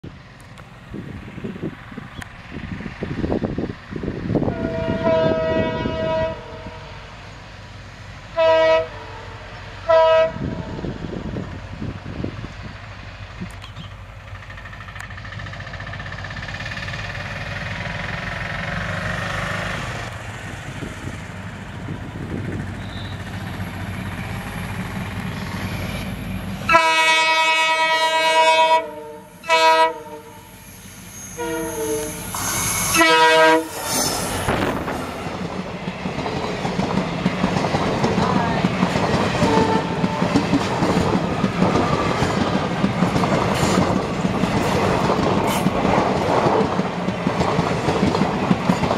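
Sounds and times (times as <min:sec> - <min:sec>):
diesel locomotive engine rumble: 0:00.0 - 0:48.9
locomotive air horn blasts: 0:04.4 - 0:07.0, 0:08.4 - 0:10.8, 0:26.7 - 0:30.6, 0:31.2 - 0:34.1, 0:39.4 - 0:40.3
train wheels clicking over rail joints: 0:11.5 - 0:26.8, 0:30.5 - 0:48.9.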